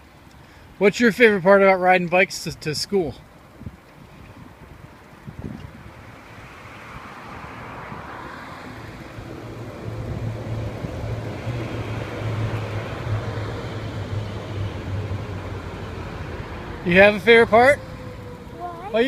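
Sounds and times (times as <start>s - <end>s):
vehicle engine hum: 3.2s - 19.0s.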